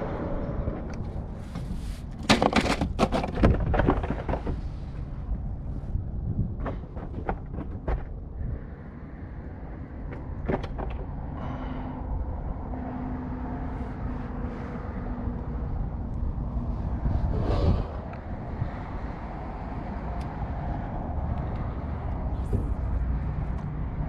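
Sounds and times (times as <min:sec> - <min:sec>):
faint engine hum: 0:04.4 - 0:24.0
low rumble: 0:13.7 - 0:21.2.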